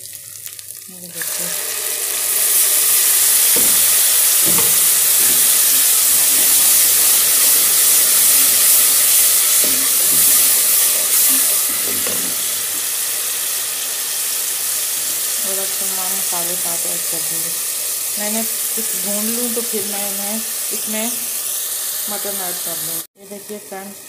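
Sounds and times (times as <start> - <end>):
food sizzling in hot oil: 0.0 - 24.0
wooden spoon stirring: 3.2 - 12.8.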